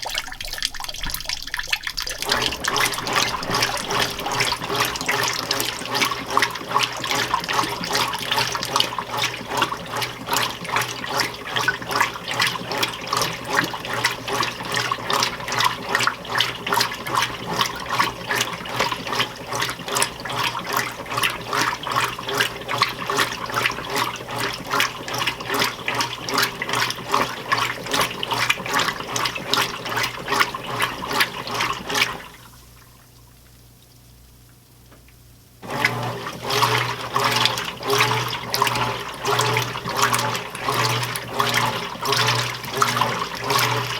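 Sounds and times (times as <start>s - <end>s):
washing machine agitator swishing water: 0.0s - 43.9s
low motor hum: 2.0s - 8.7s.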